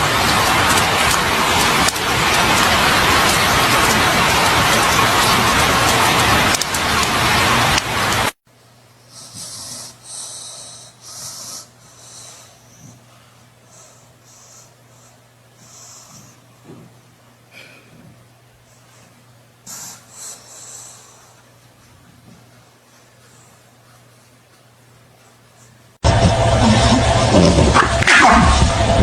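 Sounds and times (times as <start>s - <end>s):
faint electrical hum: 0.0s - 29.0s
pet snuffling and wheezing: 9.1s - 17.0s, 17.6s - 24.4s, 25.2s - 29.0s.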